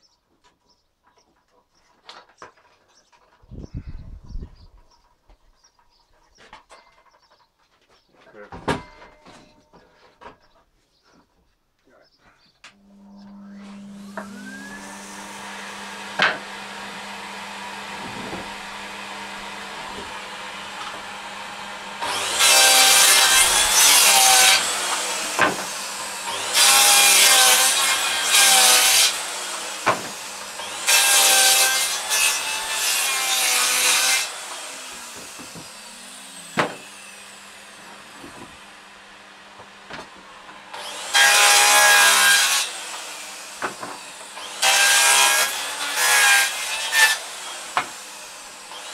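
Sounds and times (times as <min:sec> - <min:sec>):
vacuum humming: 0:12.7 - 0:42.1
circular saw cutting wood: 0:12.7 - 0:48.9
sharp knocks of wood: 0:36.6 - 0:36.8.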